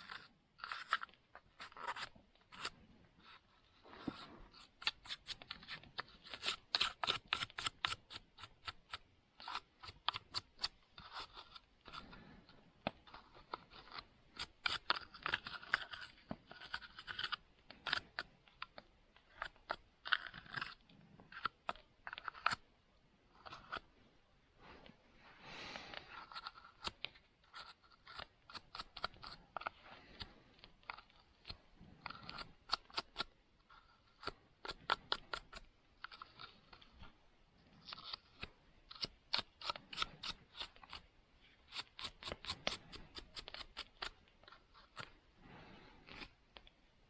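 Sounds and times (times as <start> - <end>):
scraping stroke on blade: 41.6 - 45.1.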